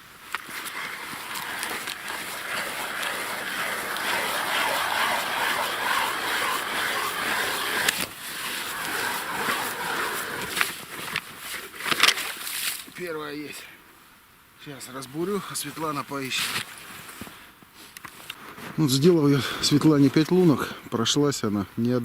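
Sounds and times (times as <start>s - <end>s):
ice auger grinding through ice: 0.3s - 12.4s.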